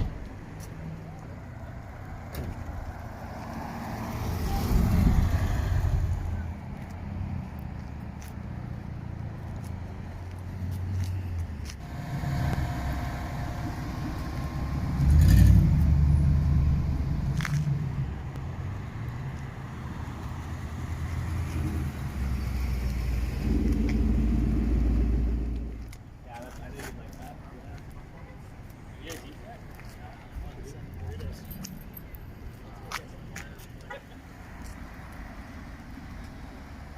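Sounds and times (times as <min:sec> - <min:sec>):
car engines rumbling: 0:00.0 - 0:36.9.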